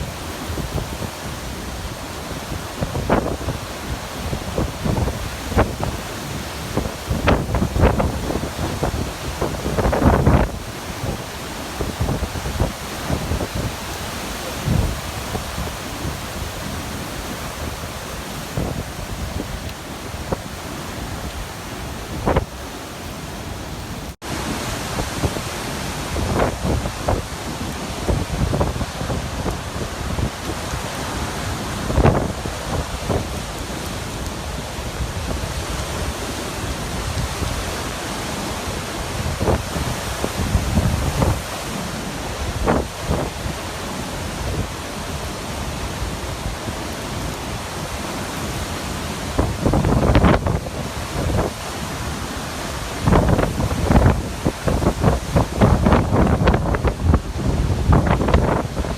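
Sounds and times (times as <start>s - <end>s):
wind buffeting microphone: 0.0s - 24.2s, 39.0s - 58.9s
wind and surf roaring: 0.0s - 58.9s.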